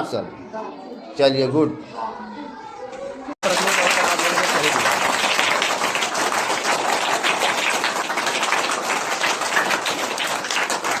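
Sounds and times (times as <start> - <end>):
people clapping: 3.4 - 11.0.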